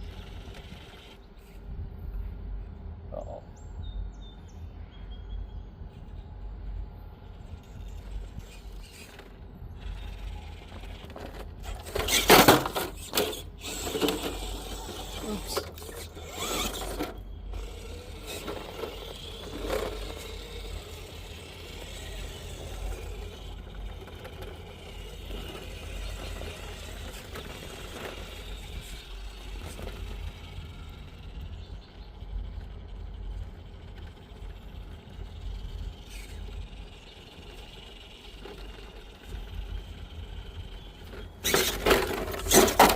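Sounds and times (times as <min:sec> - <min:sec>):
rc truck motor and gears: 0:00.0 - 0:01.7, 0:05.8 - 0:42.9
scraping and knocking on rock: 0:41.2 - 0:42.9.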